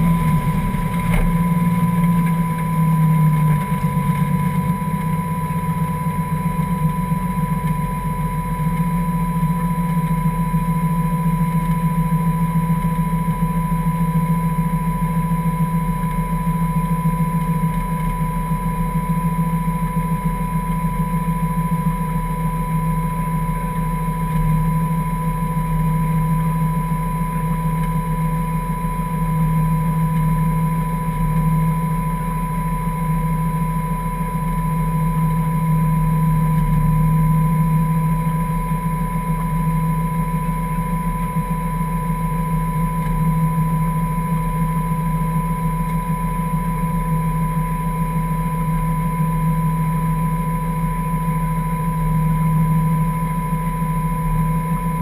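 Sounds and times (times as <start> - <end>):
car engine idling: 0.0 - 55.0
high whine: 0.0 - 55.0.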